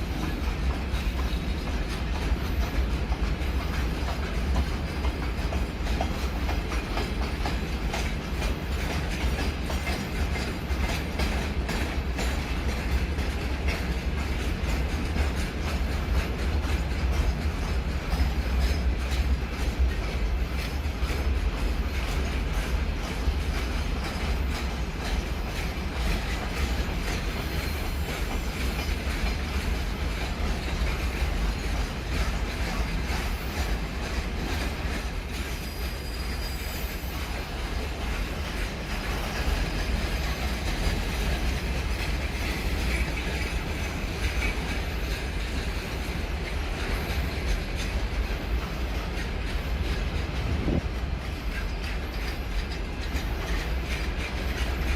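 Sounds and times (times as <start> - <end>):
train rumbling past: 0.0 - 54.9
wheel clatter over track: 0.0 - 54.9
faint squeal of wheels: 24.0 - 29.2, 32.6 - 38.2.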